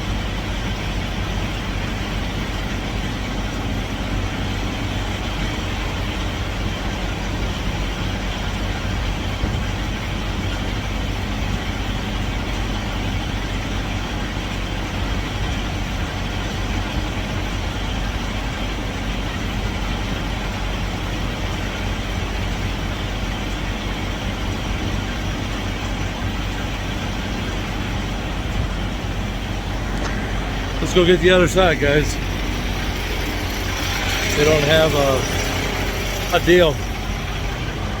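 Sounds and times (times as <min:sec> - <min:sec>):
diesel engine idling: 0:00.0 - 0:38.0
rushing noise: 0:27.6 - 0:38.0.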